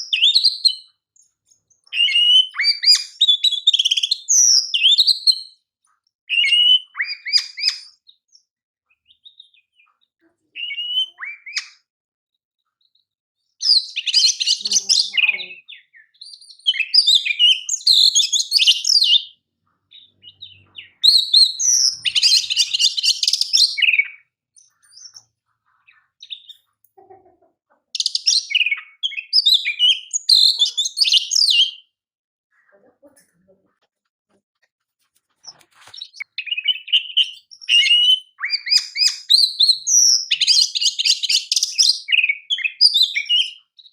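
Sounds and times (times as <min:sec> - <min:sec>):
bird singing whistles and trills: 0:00.0 - 0:05.6, 0:06.3 - 0:09.9, 0:10.6 - 0:11.9, 0:13.6 - 0:25.3, 0:28.0 - 0:31.9, 0:35.5 - 0:43.9.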